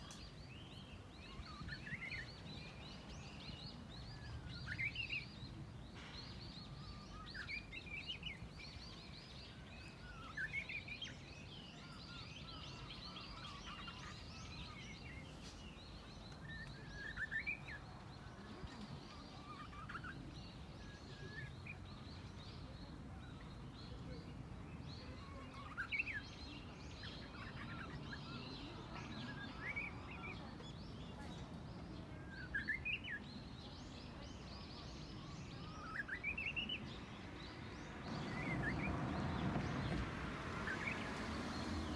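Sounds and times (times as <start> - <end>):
small birds twittering: 0.0 - 41.9
low outdoor rumble: 36.8 - 41.9.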